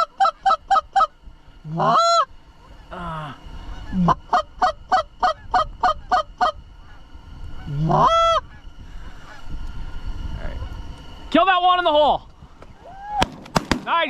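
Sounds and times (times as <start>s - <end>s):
goose honking: 0.0s - 3.0s, 3.6s - 9.5s.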